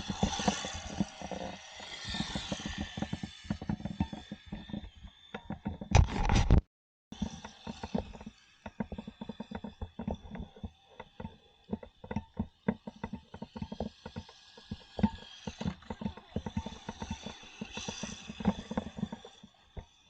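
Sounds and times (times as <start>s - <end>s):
plastic tires clattering on surface: 7.2s - 20.0s.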